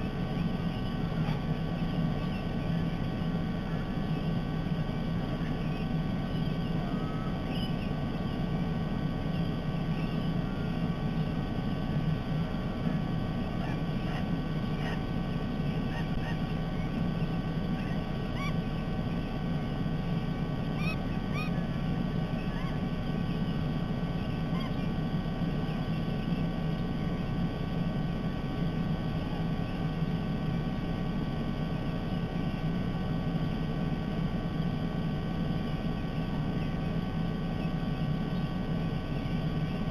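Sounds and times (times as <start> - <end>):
low background rumble: 0.0 - 39.9
parrot chirps: 13.5 - 19.3, 20.7 - 21.8.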